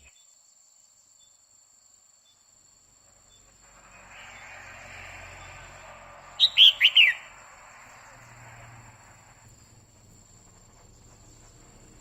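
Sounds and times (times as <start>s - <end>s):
steady hiss: 1.6s - 12.0s
bird giving sharp notes: 6.4s - 7.4s.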